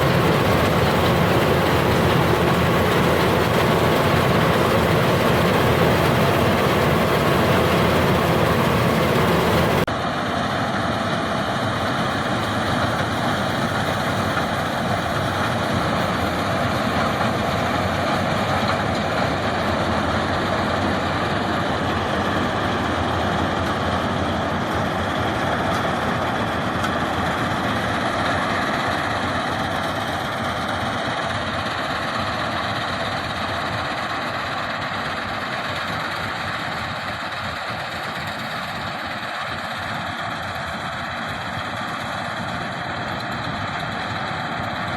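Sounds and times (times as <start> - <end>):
combine harvester running: 0.0 - 44.9.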